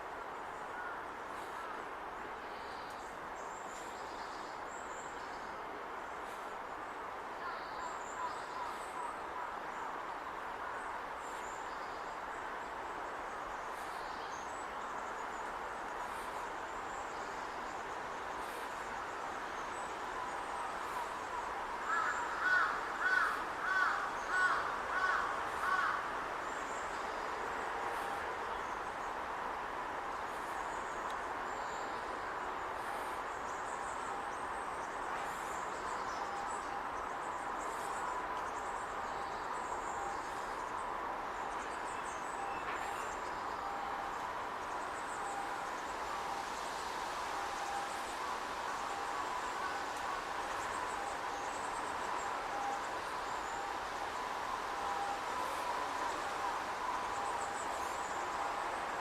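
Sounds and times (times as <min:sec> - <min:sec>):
steady background noise: 0:00.0 - 0:59.0
crow cawing: 0:21.9 - 0:26.0.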